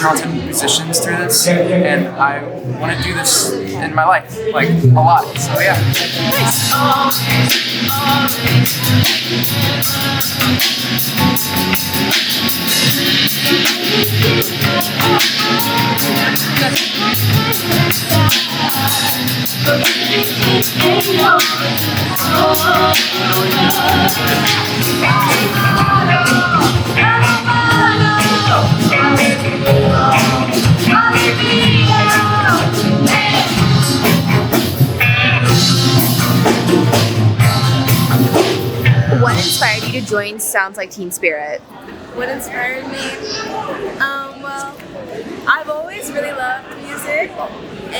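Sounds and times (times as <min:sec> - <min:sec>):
rock song with singing: 0:04.6 - 0:40.1
drum kit beat: 0:04.6 - 0:41.5
electric guitar: 0:05.3 - 0:39.6.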